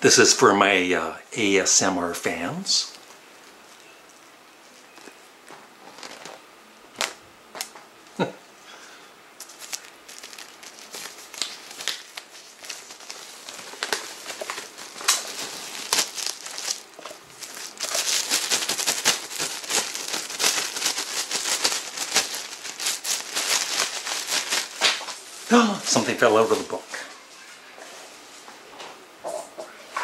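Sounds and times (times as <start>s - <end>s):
plastic wrapper crinkling: 5.8s - 7.8s, 9.4s - 26.8s.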